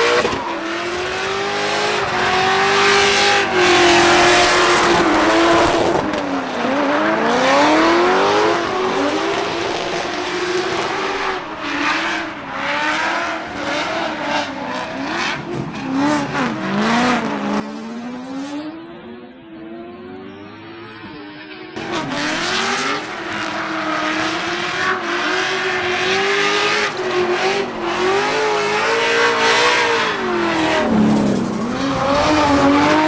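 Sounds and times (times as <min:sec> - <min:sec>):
car engine revving: 0:00.0 - 0:21.2, 0:21.8 - 0:33.0
tyre screech: 0:28.2 - 0:33.0.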